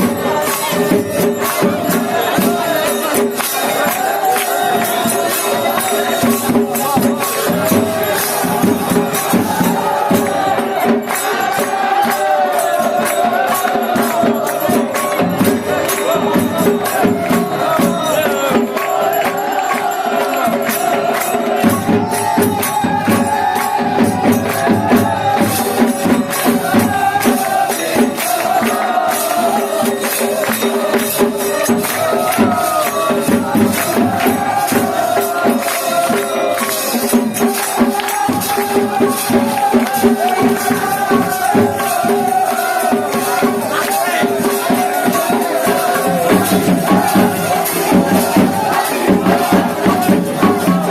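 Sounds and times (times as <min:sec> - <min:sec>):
fast percussion strikes: 0:00.0 - 0:50.9
person singing a melodic chant: 0:00.0 - 0:50.9.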